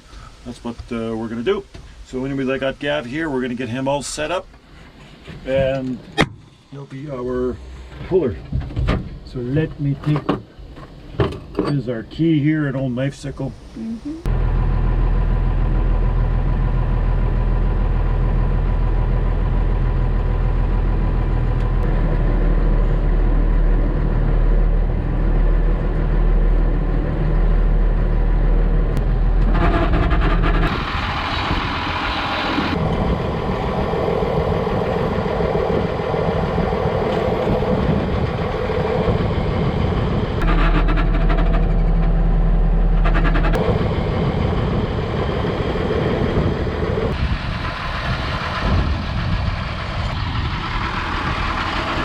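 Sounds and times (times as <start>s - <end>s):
farm vehicle engine running: 14.2s - 52.0s.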